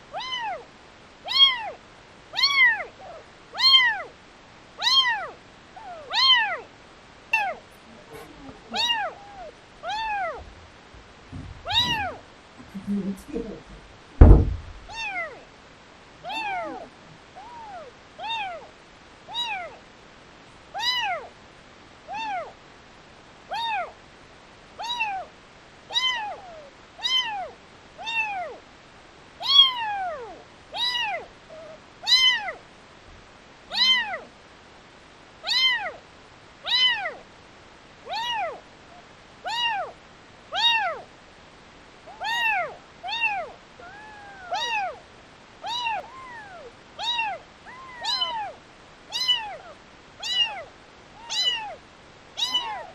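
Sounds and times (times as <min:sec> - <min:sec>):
kitten meowing: 0:00.1 - 0:00.6, 0:01.3 - 0:01.8, 0:02.4 - 0:04.1, 0:04.8 - 0:06.7, 0:07.4 - 0:10.4, 0:11.6 - 0:12.2, 0:14.2 - 0:15.4, 0:16.2 - 0:18.7, 0:19.3 - 0:19.8, 0:20.8 - 0:21.3, 0:22.1 - 0:22.6, 0:23.5 - 0:24.0, 0:24.8 - 0:25.3, 0:25.9 - 0:28.6, 0:29.4 - 0:32.6, 0:33.7 - 0:34.3, 0:35.4 - 0:36.0, 0:36.7 - 0:37.2, 0:38.1 - 0:38.6, 0:39.4 - 0:40.0, 0:40.6 - 0:41.1, 0:42.1 - 0:45.0, 0:45.6 - 0:51.8, 0:52.4 - 0:52.9.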